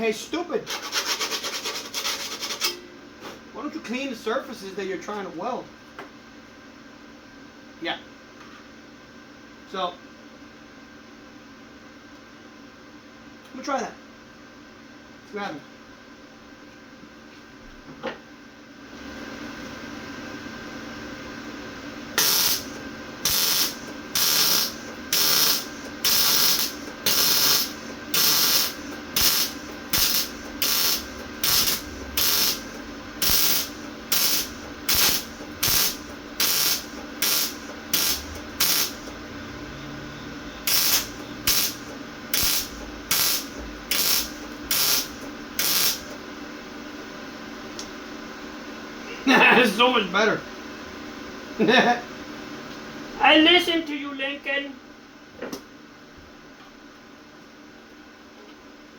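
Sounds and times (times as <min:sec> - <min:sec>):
steady hum: 0:00.0 - 0:58.8
welder arc crackling: 0:22.2 - 0:39.1, 0:40.6 - 0:46.2.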